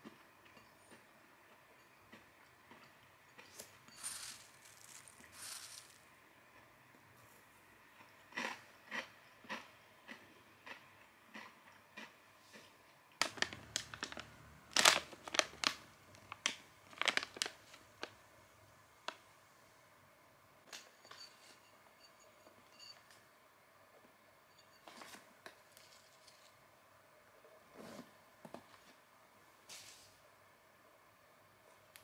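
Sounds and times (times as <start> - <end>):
plastic snack bag crackling: 3.9 - 6.0, 13.2 - 18.2
crunchy chewing: 8.0 - 12.7.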